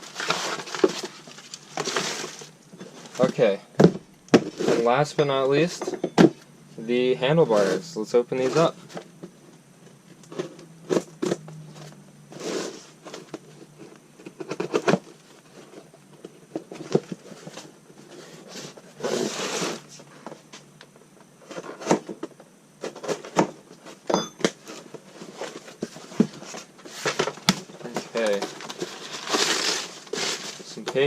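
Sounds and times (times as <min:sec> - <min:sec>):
packaging tearing: 0:27.8 - 0:30.8.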